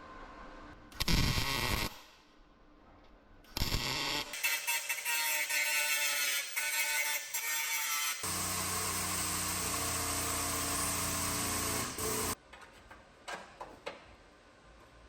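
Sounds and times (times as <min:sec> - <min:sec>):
power tool running: 0:08.1 - 0:12.4.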